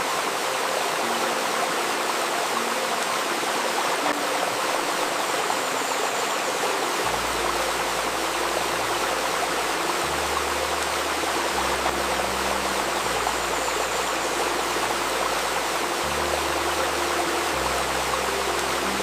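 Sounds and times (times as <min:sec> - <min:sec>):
river water babbling: 0:00.0 - 0:19.0
soft low shifting tones: 0:06.6 - 0:19.0.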